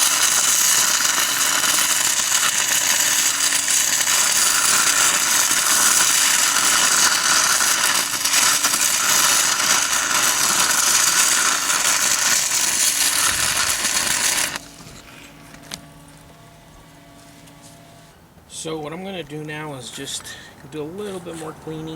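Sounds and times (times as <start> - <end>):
welding arc crackle and hiss: 0.0 - 16.0.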